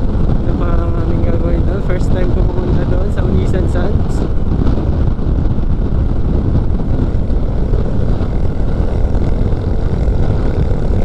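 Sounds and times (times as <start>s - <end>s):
motorcycle engine rumble: 0.0s - 11.0s
wind rush: 0.0s - 11.0s.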